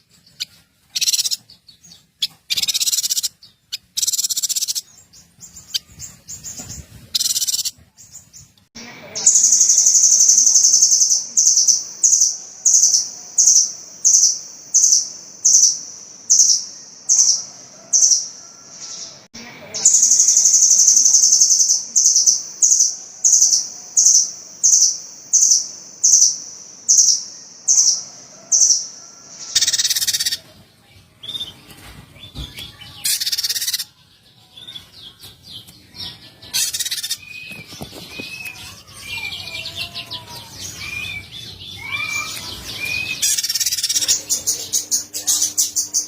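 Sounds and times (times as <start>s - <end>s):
songbirds sharp high notes: 0.0s - 30.5s, 31.2s - 46.0s
curved whistled bird notes: 22.2s - 30.4s, 40.6s - 44.2s.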